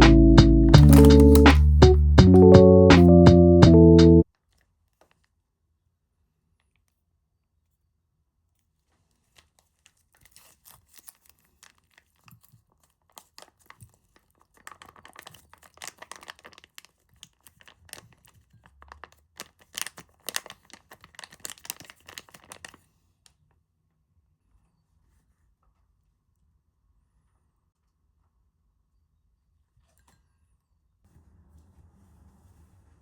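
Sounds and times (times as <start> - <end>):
crinkling and crackling handling: 0.7 - 1.7, 8.8 - 23.5.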